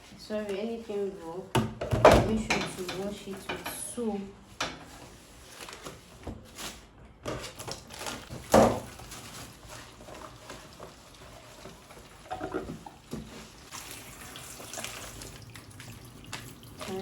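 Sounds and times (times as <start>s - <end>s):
tap water running into sink: 10.5s - 17.0s.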